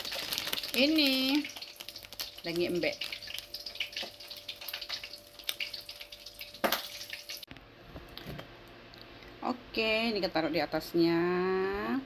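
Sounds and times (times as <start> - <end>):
oil frying food in a pan: 0.0 - 7.5.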